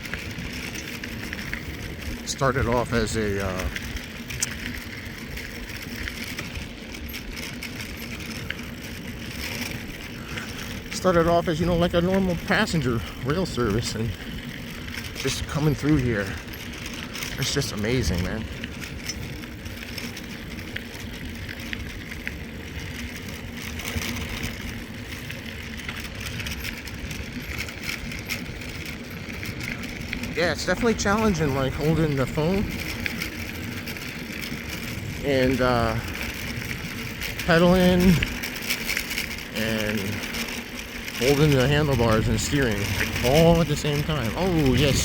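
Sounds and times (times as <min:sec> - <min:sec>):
tyres rolling over trail: 0:00.0 - 0:45.0
wind rumbling on microphone: 0:00.0 - 0:45.0
faint ticks: 0:03.6 - 0:11.0, 0:18.2 - 0:30.4
faint clicks: 0:03.7 - 0:05.0
wind buffeting microphone: 0:39.2 - 0:45.0.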